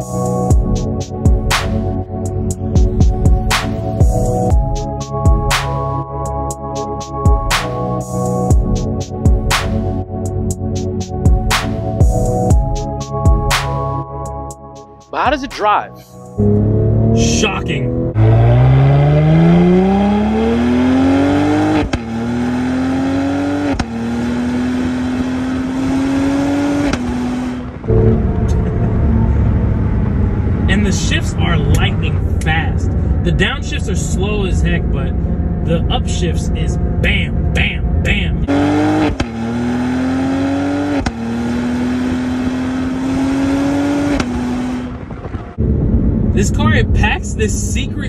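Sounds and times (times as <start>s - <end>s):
car engine accelerating hard: 16.4s - 48.0s.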